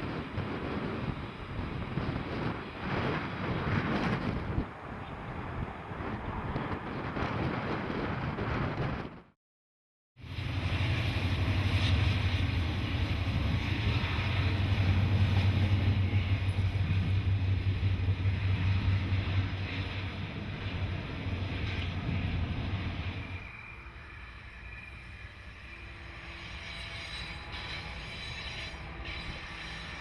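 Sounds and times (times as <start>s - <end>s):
rail and wheel noise: 0.0s - 9.4s, 10.2s - 30.0s
diesel locomotive rumble: 10.2s - 30.0s.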